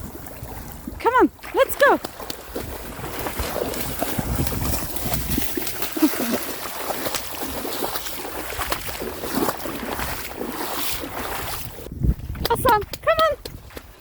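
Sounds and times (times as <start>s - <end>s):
footsteps on wet ground: 0.0s - 14.0s
wind rumbling on microphone: 0.0s - 14.0s.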